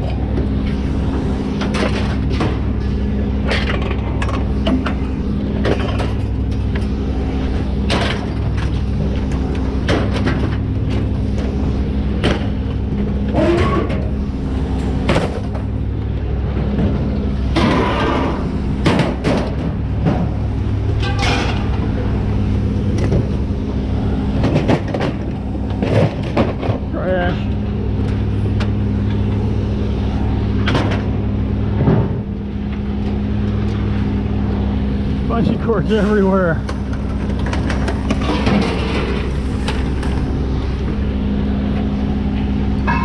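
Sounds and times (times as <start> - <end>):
truck engine droning: 0.0 - 43.0.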